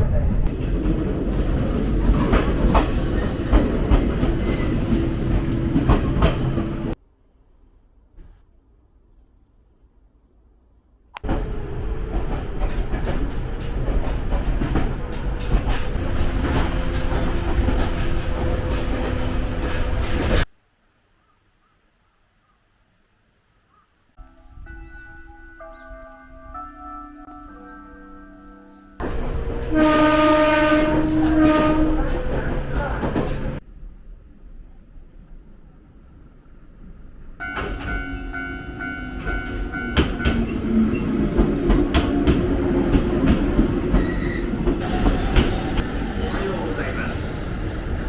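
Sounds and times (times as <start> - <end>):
electric train rumbling: 0.0 - 7.0, 11.2 - 20.5, 24.2 - 48.0
train horn: 29.1 - 33.2, 37.4 - 40.4.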